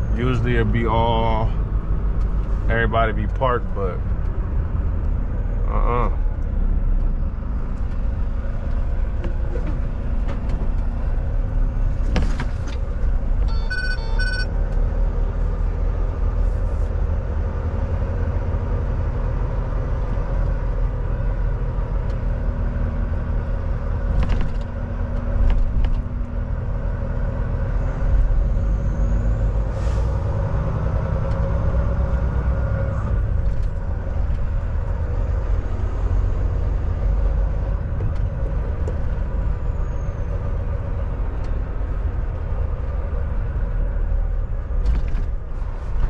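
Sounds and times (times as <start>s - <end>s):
diesel engine and road rumble: 0.0s - 46.0s
short electronic beeps: 13.5s - 14.5s.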